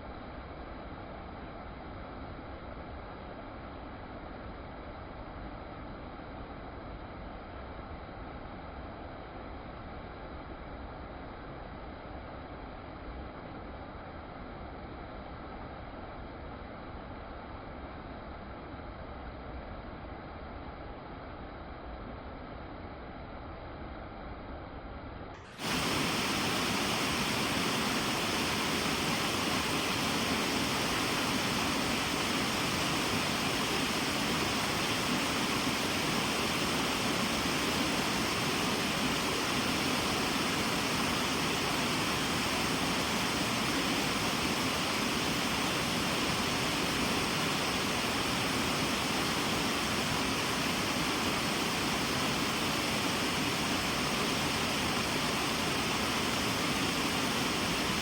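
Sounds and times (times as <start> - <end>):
waterfall rushing: 25.5 - 58.0.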